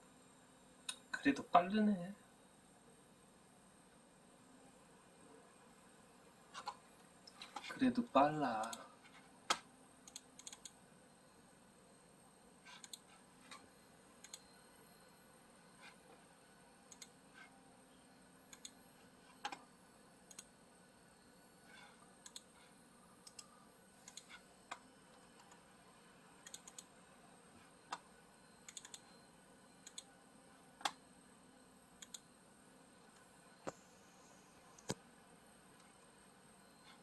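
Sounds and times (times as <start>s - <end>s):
mouse and keyboard clicks: 12.7s - 13.6s, 24.1s - 24.8s, 26.5s - 26.9s, 28.7s - 29.1s.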